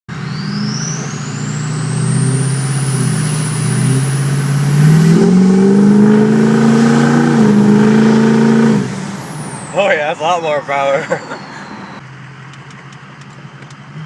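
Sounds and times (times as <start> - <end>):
diesel engine running: 0.1 - 13.7
turbo whistle rising: 0.2 - 9.9.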